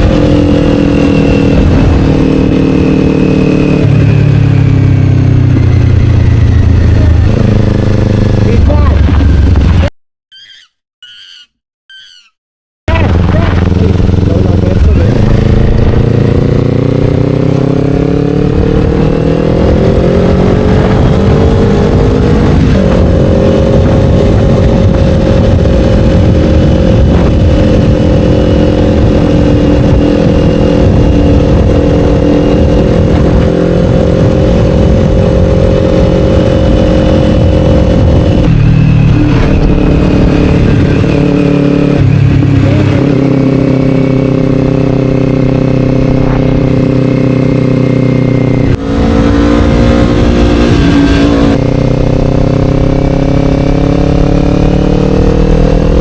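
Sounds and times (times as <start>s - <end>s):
motorcycle engine accelerating: 0.0s - 9.9s, 12.9s - 56.0s.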